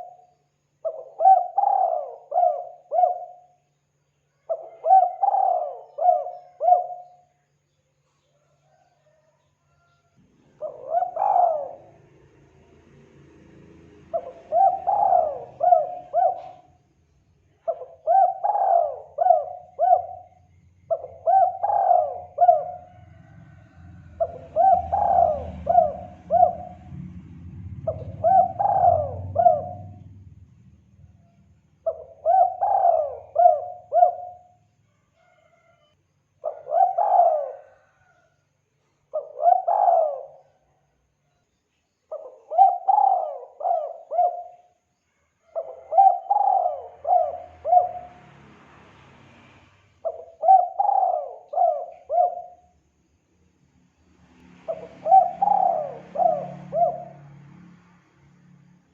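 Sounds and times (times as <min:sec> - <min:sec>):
dove cooing: 0:00.0 - 0:03.7, 0:04.4 - 0:07.4, 0:08.4 - 0:12.3, 0:14.0 - 0:16.8, 0:17.6 - 0:27.1, 0:27.8 - 0:30.2, 0:31.8 - 0:34.6, 0:36.4 - 0:38.3, 0:39.1 - 0:40.8, 0:42.1 - 0:44.8, 0:45.4 - 0:48.3, 0:50.0 - 0:52.7, 0:54.7 - 0:57.4
faint low rumble: 0:23.1 - 0:31.9.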